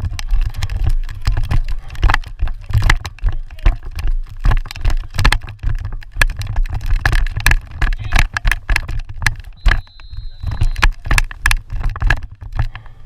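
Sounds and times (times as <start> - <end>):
thin high whistle: 9.6 - 10.8.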